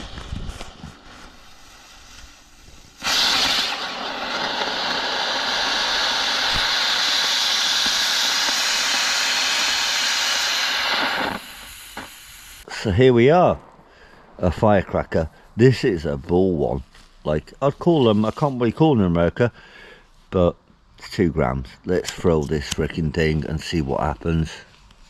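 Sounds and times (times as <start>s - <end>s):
firework spraying hiss: 0.0s - 12.7s.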